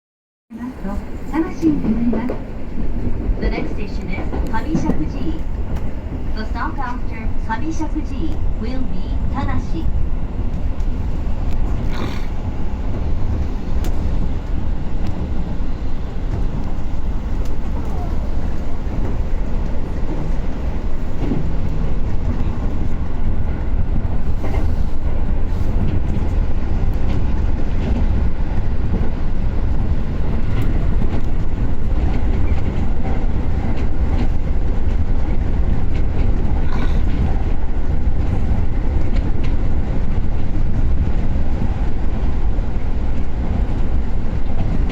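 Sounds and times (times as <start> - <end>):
train wheels rumbling on rails: 0.5 - 44.9.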